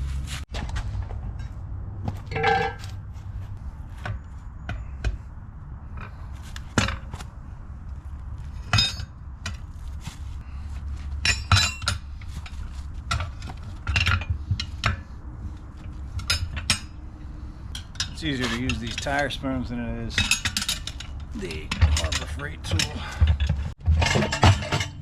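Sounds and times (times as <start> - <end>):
tire spoons clinking on wheel rim: 2.2 - 3.0, 8.5 - 9.8, 10.6 - 17.0, 17.6 - 25.0.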